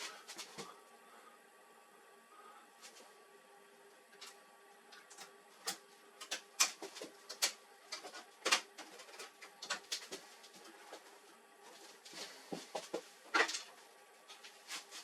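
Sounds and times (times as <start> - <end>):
faint steady hum: 0.0 - 15.0
printer parts clicking and knocking: 5.6 - 10.2.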